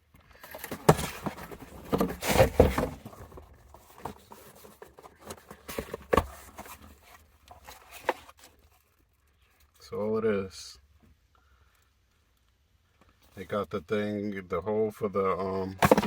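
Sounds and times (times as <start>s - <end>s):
packaging rustling: 0.3s - 8.7s.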